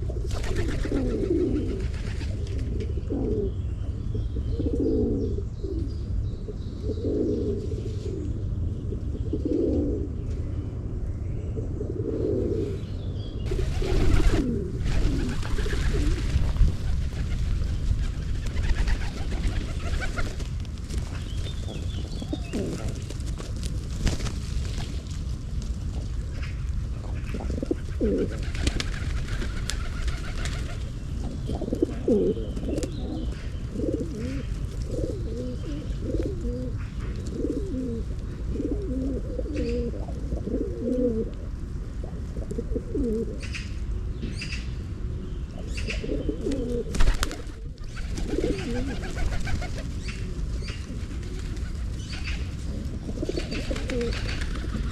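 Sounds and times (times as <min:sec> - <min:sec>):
pigeons cooing: 0:00.0 - 0:06.0, 0:06.8 - 0:10.2, 0:11.6 - 0:20.4, 0:21.1 - 0:23.7, 0:26.4 - 0:44.6, 0:45.5 - 0:54.9
steady low rumble: 0:00.0 - 0:54.9
low rumble: 0:05.2 - 0:28.5
loud rustle: 0:13.5 - 0:26.5
small birds chirping: 0:28.5 - 0:38.1, 0:43.4 - 0:54.9.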